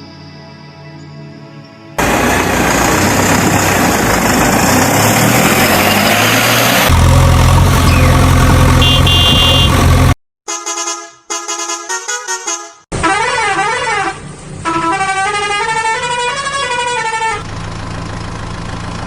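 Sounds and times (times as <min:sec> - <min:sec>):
heavy vehicle engine starting: 0:02.0 - 0:10.2
short high beeping: 0:08.8 - 0:09.8.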